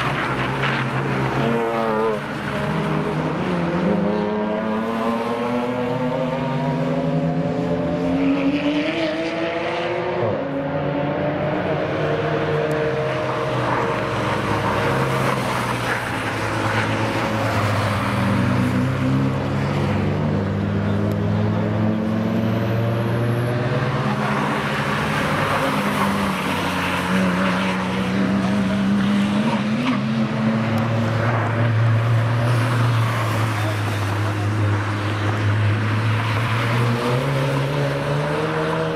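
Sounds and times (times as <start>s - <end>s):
cars passing: 0.0s - 38.9s.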